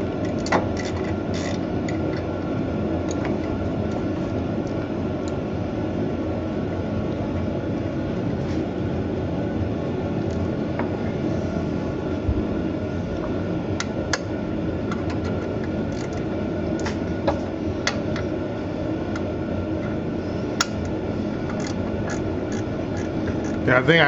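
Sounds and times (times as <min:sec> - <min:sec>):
steady rumbling: 0:00.0 - 0:24.0.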